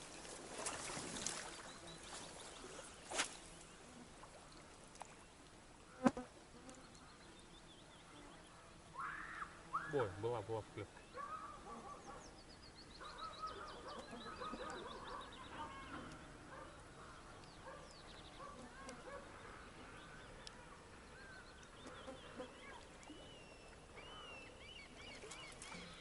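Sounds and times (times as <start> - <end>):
birds chirping: 6.7 - 26.0.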